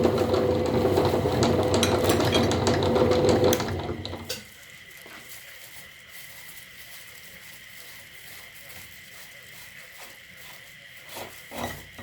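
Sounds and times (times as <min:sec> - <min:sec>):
electric meat grinder running: 0:00.0 - 0:04.3
crackling of grinding snack: 0:00.0 - 0:12.0.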